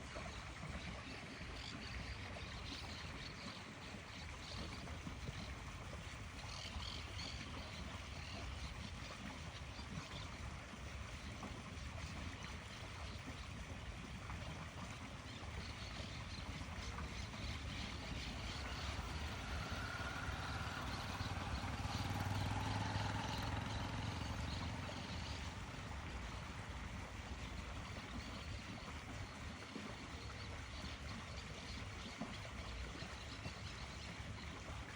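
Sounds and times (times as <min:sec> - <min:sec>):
low engine hum: 0:00.0 - 0:34.9
outdoor background noise: 0:00.0 - 0:34.9.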